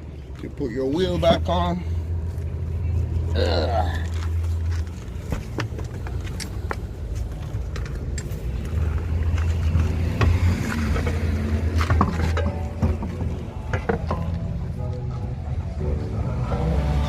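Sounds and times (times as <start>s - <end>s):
steady low rumble: 0.0s - 16.8s
metallic clinks and knocks: 5.6s - 14.6s.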